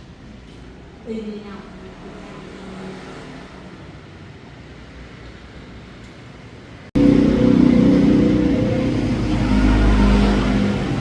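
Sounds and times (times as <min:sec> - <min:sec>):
steady background noise: 0:00.0 - 0:11.0
motor vehicle engine running loudly: 0:07.0 - 0:11.0.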